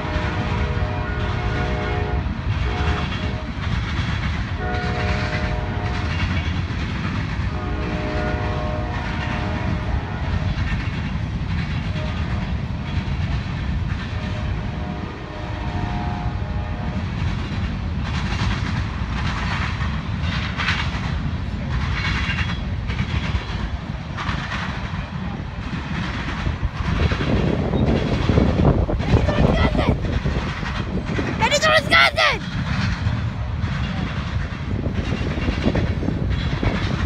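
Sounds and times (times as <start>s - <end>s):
locomotive horn blasts: 0.0s - 3.4s, 4.6s - 6.1s, 7.5s - 10.2s, 14.2s - 17.0s
freight train rumble: 0.0s - 37.0s.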